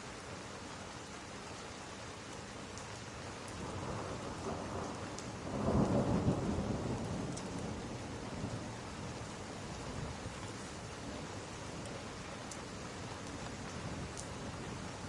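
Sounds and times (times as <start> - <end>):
steady rain: 0.0 - 15.0
thunder rolling: 5.5 - 8.0.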